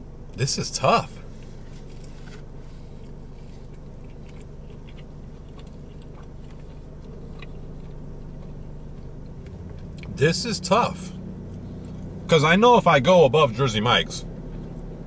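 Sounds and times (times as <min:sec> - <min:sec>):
car cabin hum: 0:00.0 - 0:15.0
person chewing a sandwich: 0:01.4 - 0:10.1, 0:11.4 - 0:12.2.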